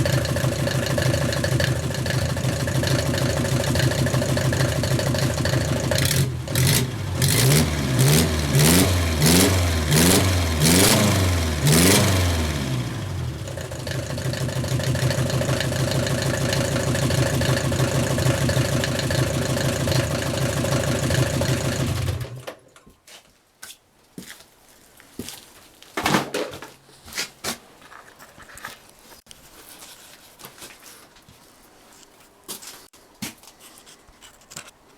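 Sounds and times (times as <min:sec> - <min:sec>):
diesel engine revving and idling: 0:00.0 - 0:22.4.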